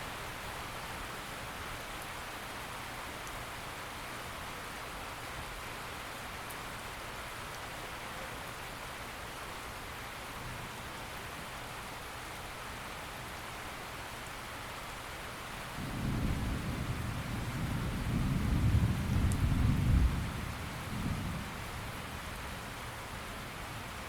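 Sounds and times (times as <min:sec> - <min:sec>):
steady rain falling: 0:00.0 - 0:24.0
low rumble of thunder: 0:15.8 - 0:22.5.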